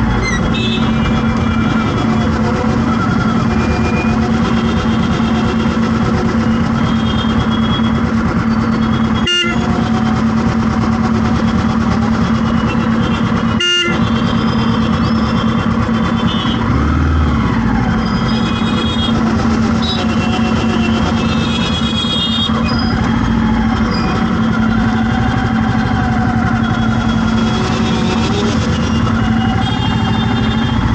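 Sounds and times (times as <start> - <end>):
vehicle engine drone: 0.0 - 30.9
car horns honking: 0.1 - 2.0, 6.8 - 8.0, 8.9 - 9.8, 12.6 - 14.8, 15.9 - 16.6, 18.2 - 22.7, 26.8 - 30.9.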